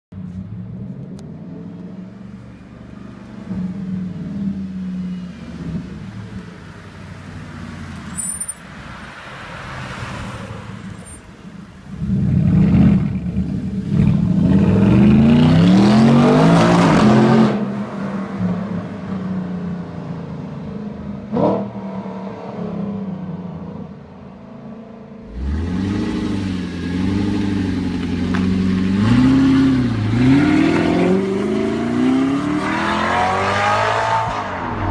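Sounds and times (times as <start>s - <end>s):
car engine revving: 25.2s - 34.9s.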